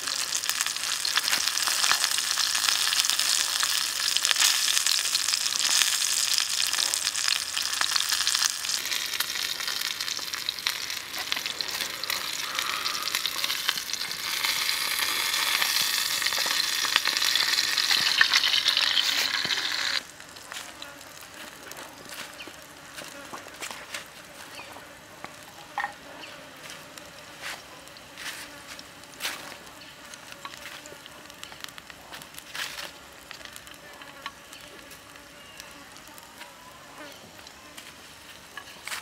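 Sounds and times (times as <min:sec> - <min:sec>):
food sizzling in hot oil: 0:00.0 - 0:22.7
oil crackling and spattering: 0:00.0 - 0:22.8, 0:28.7 - 0:36.1.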